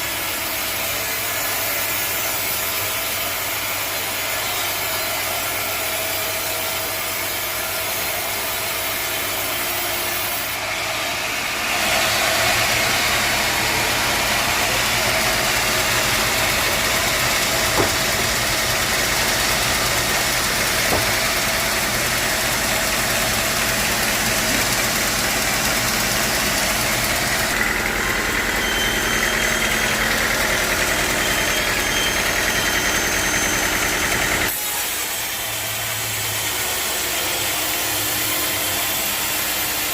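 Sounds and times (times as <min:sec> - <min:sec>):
sawmill machinery running: 0:00.0 - 0:39.9
motor hum: 0:12.6 - 0:25.9.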